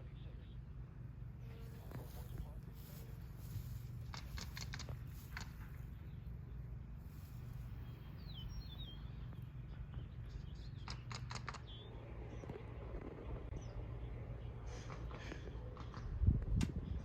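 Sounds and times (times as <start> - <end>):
sharp clicks: 4.0 - 5.7, 10.8 - 11.8
wind rumble on microphone: 7.3 - 17.0.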